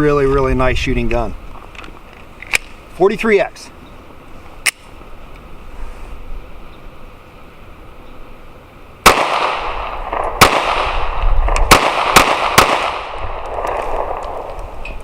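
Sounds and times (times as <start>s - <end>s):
pistol shots with echo: 9.0s - 14.6s.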